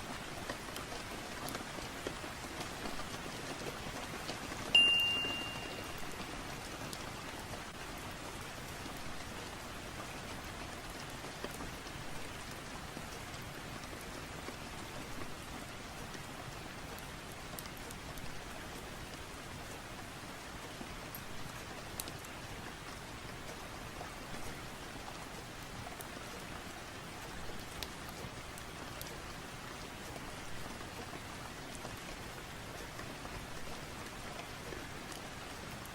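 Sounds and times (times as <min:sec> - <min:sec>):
rain falling: 0:00.0 - 0:35.9
sharp ringing clink: 0:04.8 - 0:05.9.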